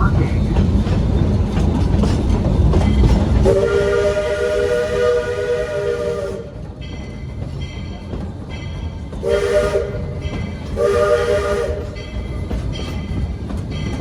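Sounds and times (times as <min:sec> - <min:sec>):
train cars rumbling and rattling: 0:00.0 - 0:14.0
locomotive whistle chord: 0:03.4 - 0:06.6, 0:09.2 - 0:10.2, 0:10.8 - 0:12.0.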